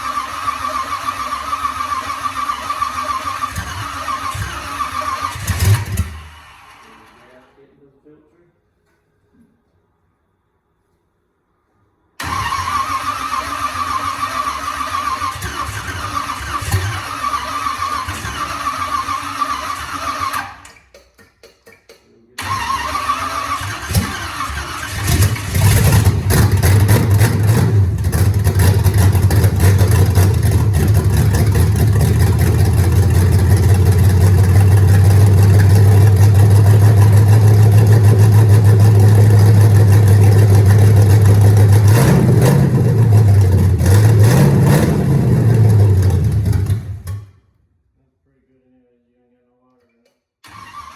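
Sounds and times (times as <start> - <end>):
engine cranking: 0.0 - 7.4, 12.2 - 47.2
car engine running and revving: 25.0 - 47.2.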